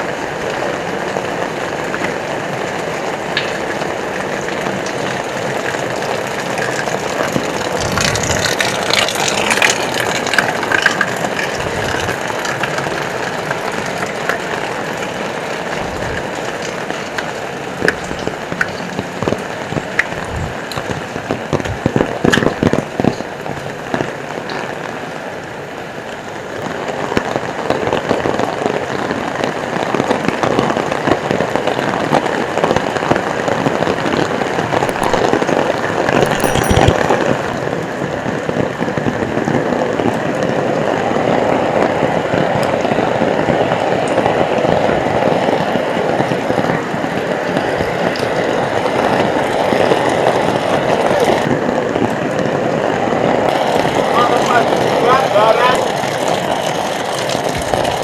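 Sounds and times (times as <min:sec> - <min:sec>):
heavy rain pouring: 0:00.0 - 0:38.0, 0:39.6 - 0:58.0.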